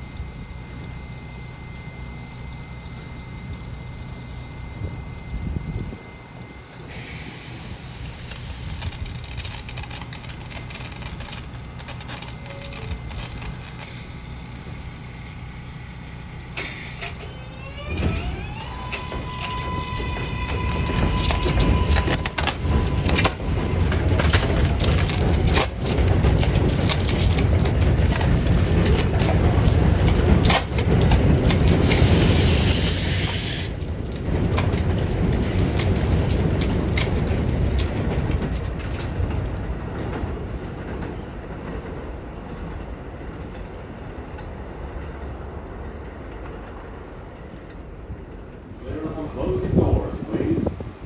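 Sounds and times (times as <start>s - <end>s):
subway train rumble: 0.0s - 51.0s.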